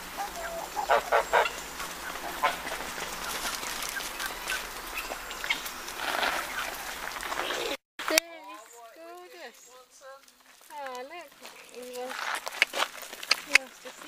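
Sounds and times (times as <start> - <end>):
poultry calling: 0.0 - 7.8
clicks and rustling of birds: 0.0 - 14.0.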